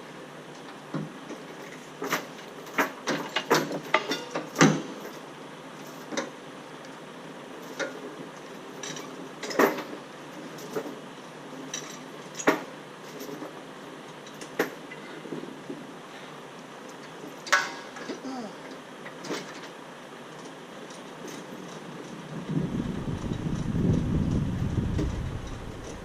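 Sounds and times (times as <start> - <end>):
background noise: 0.0 - 26.0
metallic clanks and rattles: 1.4 - 5.2.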